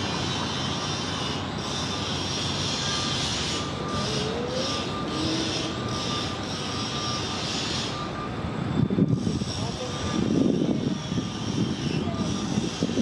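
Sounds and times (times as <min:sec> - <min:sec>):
bus engines roaring: 0:00.0 - 0:13.0.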